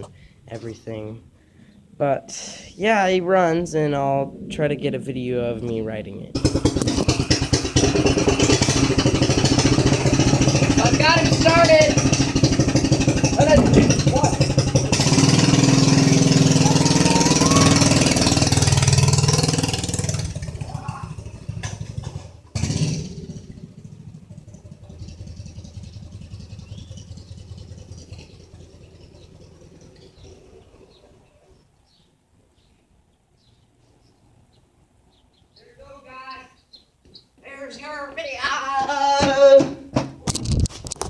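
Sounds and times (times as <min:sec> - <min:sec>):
mini bike engine running: 0:06.4 - 0:31.2.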